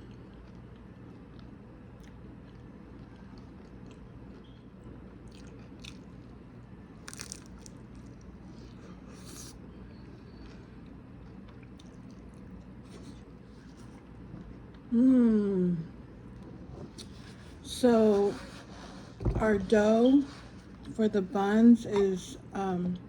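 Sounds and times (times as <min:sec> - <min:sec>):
person chewing crunchy food: 0:00.0 - 0:14.9.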